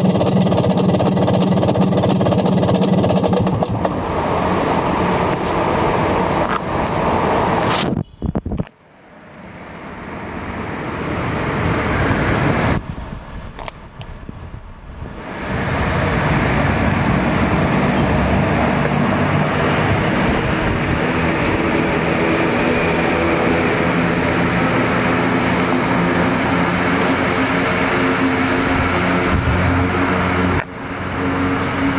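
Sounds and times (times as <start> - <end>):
scooter engine revving: 0.0 - 4.1, 15.4 - 31.9.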